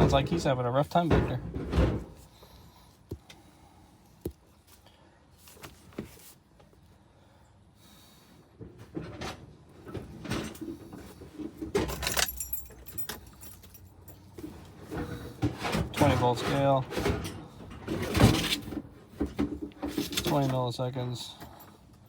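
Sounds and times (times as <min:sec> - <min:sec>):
keys jangling: 0:11.8 - 0:14.4.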